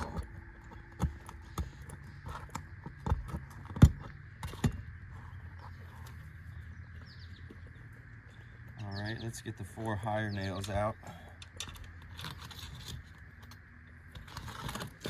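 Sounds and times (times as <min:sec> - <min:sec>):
metal scraping: 0:10.5 - 0:15.0.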